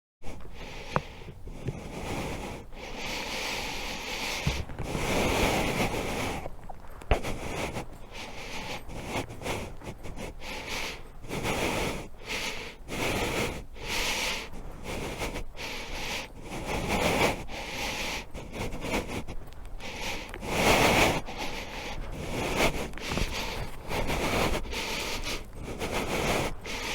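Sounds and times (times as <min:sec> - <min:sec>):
wind buffeting microphone: 0:04.1 - 0:13.0.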